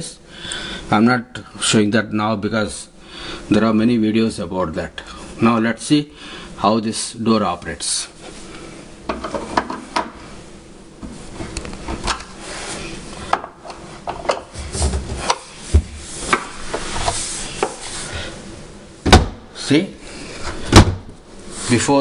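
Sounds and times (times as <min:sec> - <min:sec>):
cupboard door thumping shut: 0:19.0 - 0:19.4, 0:20.7 - 0:21.1.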